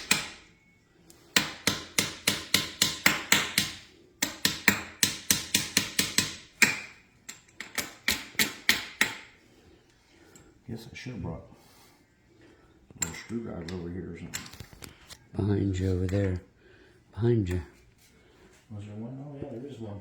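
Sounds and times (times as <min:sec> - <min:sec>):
hammer tapping on metal: 0:00.0 - 0:00.5, 0:01.3 - 0:09.4.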